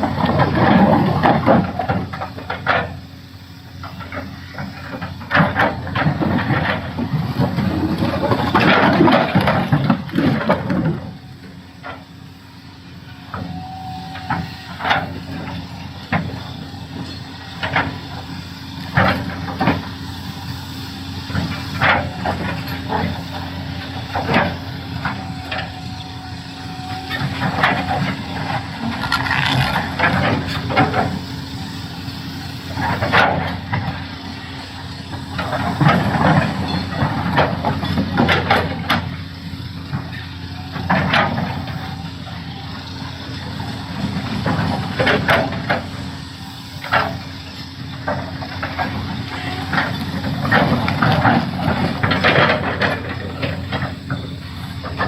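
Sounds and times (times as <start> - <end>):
excavator diesel engine under load: 0.0 - 55.0
rock scraping against bucket: 28.9 - 30.0.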